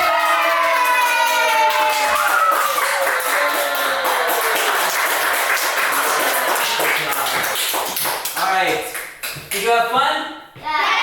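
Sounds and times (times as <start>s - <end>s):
children cheering: 0.0s - 7.3s
clapping: 0.0s - 9.7s.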